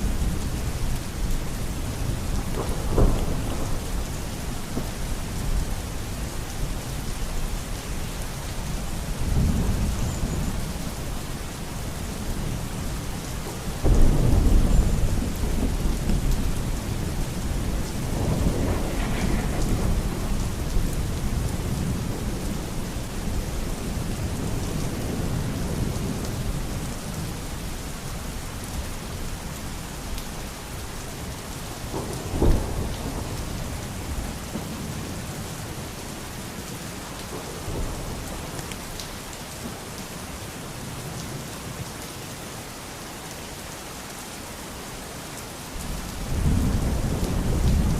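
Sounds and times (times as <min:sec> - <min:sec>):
soft rolls of thunder: 0:00.0 - 0:05.9, 0:13.8 - 0:27.3, 0:31.9 - 0:35.5, 0:45.8 - 0:47.9
heavy rain: 0:00.0 - 0:47.9
thunder clap rumbling: 0:01.9 - 0:04.9, 0:13.8 - 0:26.5, 0:31.9 - 0:35.2, 0:46.3 - 0:47.9.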